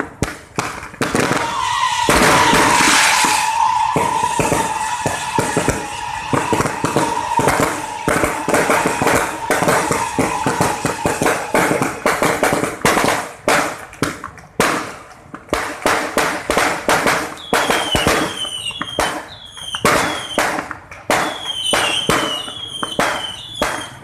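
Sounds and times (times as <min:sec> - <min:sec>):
fireworks bangs and pops: 0:00.0 - 0:24.0
falling firework whistles: 0:01.0 - 0:13.2, 0:17.0 - 0:24.0.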